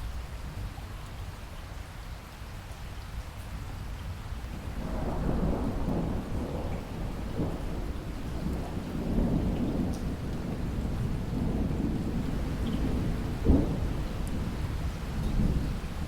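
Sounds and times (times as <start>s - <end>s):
steady rain: 0.0s - 16.0s
thunder rumbling: 4.8s - 16.0s.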